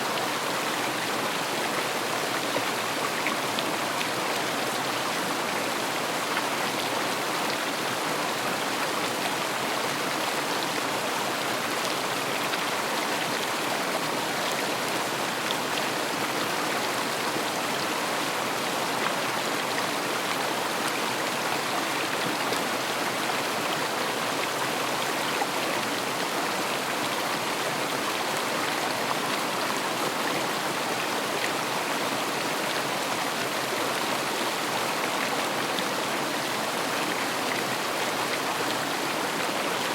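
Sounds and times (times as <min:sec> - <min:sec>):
river water rushing and splashing: 0:00.0 - 0:39.9.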